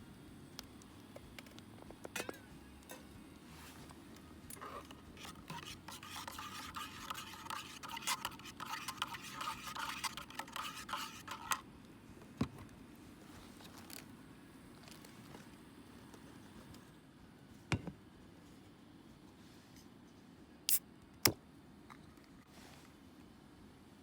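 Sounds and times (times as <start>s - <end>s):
utensil scraping in cookware: 4.5s - 11.6s.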